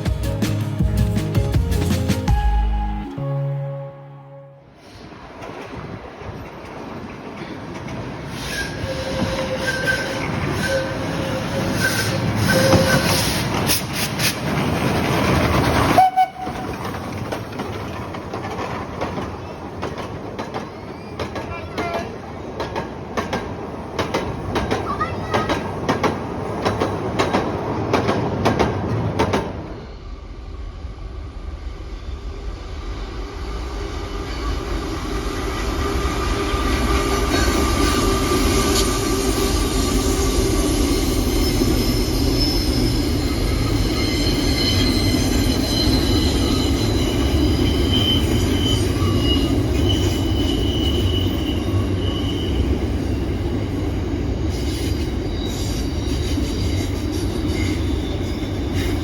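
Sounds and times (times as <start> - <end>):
train running on rails: 0.0 - 59.0
wheel squeal: 8.3 - 13.5, 36.0 - 53.2, 54.7 - 59.0.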